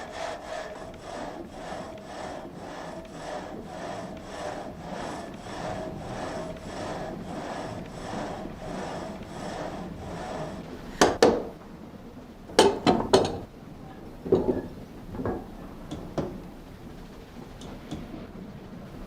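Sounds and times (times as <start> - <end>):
sharp knocks and clanks: 12.6 - 13.5, 14.3 - 16.4.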